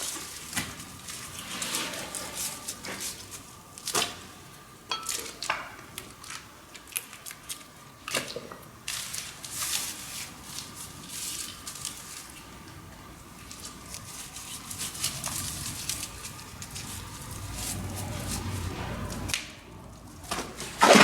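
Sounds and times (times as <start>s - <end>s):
scratchy swishing scrapes: 1.4s - 3.2s.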